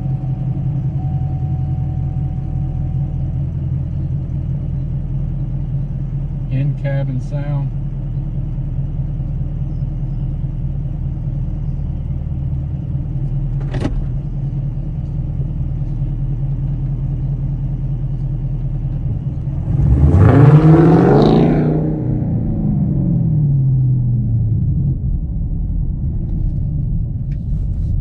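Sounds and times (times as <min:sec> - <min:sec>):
car engine drone and revving: 0:00.0 - 0:28.0.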